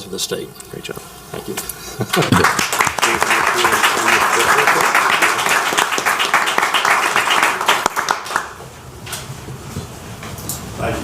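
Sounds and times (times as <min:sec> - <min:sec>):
audience applauding: 0:02.1 - 0:08.6.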